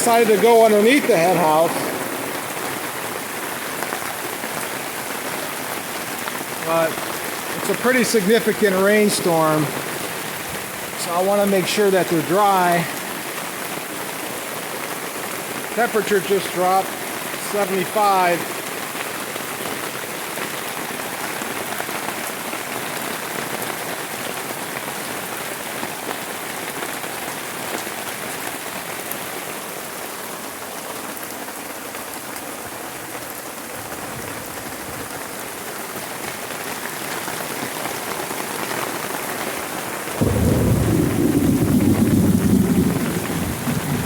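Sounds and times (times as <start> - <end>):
heavy rain pouring: 0.0 - 44.0
low rumble of thunder: 1.4 - 3.9, 40.2 - 44.0.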